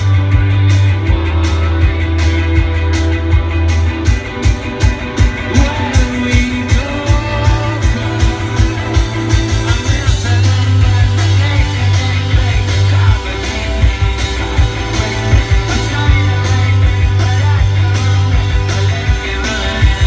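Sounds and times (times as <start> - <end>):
heavy bass line: 0.0 - 20.0
rock band playing live: 0.0 - 20.0
steady drum beat: 0.0 - 20.0.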